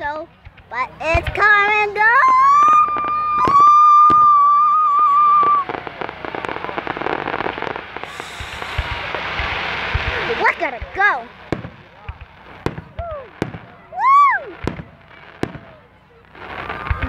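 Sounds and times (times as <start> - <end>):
firework crackling: 0.0 - 17.0
firework whistle: 2.1 - 10.6, 12.6 - 17.0.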